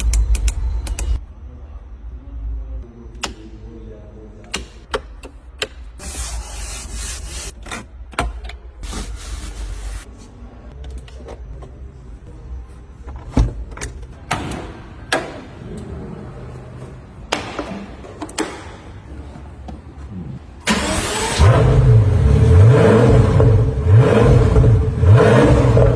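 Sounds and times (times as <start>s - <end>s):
car engine starting and revving: 20.6s - 25.9s.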